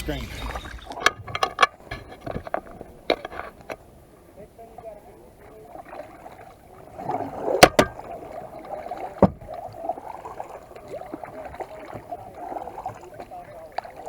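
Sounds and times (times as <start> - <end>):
water splashing around kayak: 0.0 - 14.0
knock: 9.2 - 9.5.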